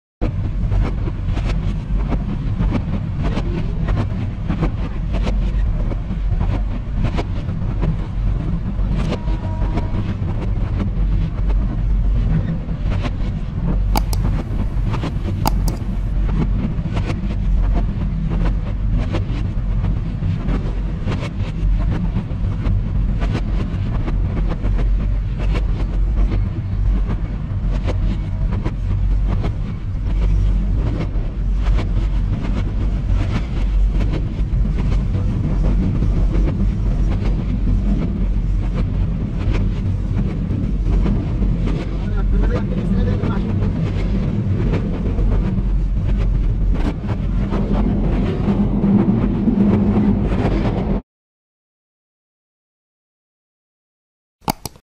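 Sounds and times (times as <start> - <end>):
train rumbling on track: 0.2 - 13.6, 16.8 - 51.0
clicks and knocks: 14.0 - 16.1, 54.5 - 54.8.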